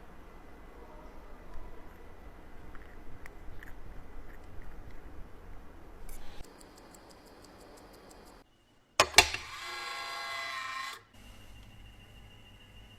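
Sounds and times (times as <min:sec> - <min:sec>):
mechanical watch ticking: 0:06.4 - 0:08.4.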